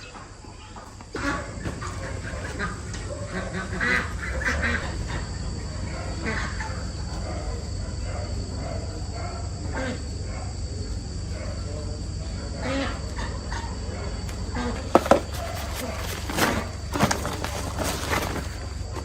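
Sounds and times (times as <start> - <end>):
farm birds calling: 0.0 - 7.5, 14.3 - 19.0
steady low hum: 0.0 - 19.0.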